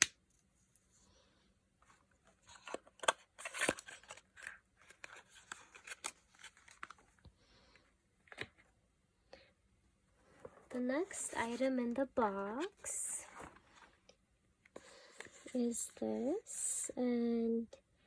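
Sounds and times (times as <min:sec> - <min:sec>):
packaging clicks and rustling: 0:02.4 - 0:07.1.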